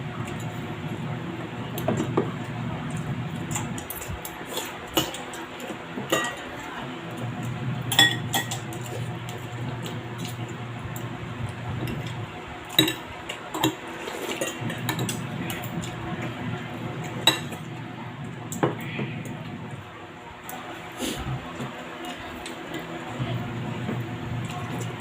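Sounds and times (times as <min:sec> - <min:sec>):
low murmur: 0:00.0 - 0:25.0
cutlery clinking against dishes: 0:03.5 - 0:06.5, 0:07.9 - 0:08.9, 0:12.7 - 0:13.0.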